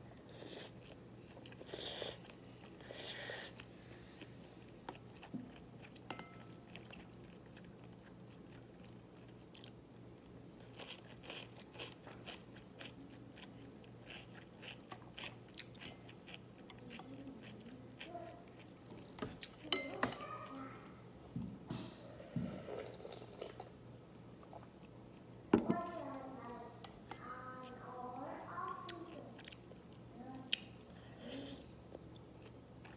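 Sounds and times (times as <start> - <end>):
chewing and crunching food: 0.5 - 19.9, 24.4 - 32.9.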